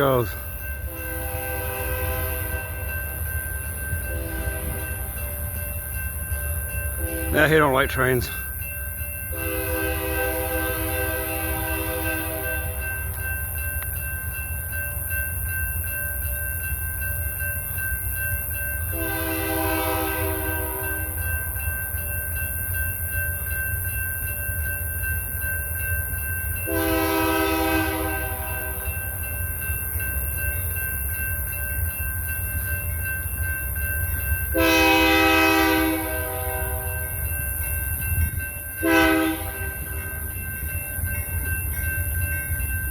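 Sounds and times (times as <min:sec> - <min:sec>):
freight train rumbling: 0:00.0 - 0:42.9
locomotive air horn blasts: 0:00.9 - 0:02.6, 0:09.3 - 0:12.6, 0:19.0 - 0:20.8, 0:26.7 - 0:28.8, 0:34.6 - 0:36.9, 0:38.8 - 0:39.7.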